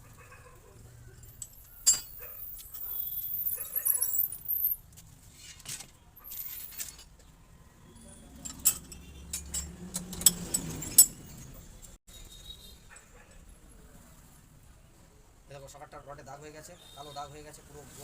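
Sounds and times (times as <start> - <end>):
light metallic clinks: 1.0 - 4.8, 7.9 - 12.0
metal parts clicking: 1.2 - 4.8, 5.6 - 7.3, 8.2 - 12.0
metal scraping: 7.9 - 11.9.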